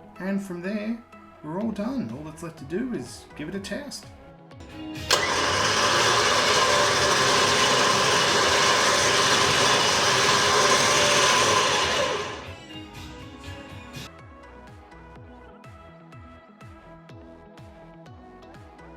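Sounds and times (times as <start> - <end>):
electric winch motor whirring: 5.0 - 12.6.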